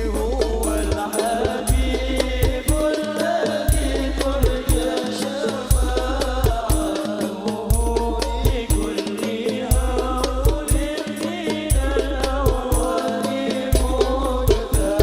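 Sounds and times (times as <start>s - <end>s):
deep bass drum: 0.0s - 3.0s, 3.7s - 5.0s, 5.6s - 7.0s, 7.7s - 9.0s, 9.7s - 11.0s, 11.7s - 13.0s, 13.8s - 15.0s
frame drums: 0.0s - 15.0s
voices singing: 0.0s - 15.0s.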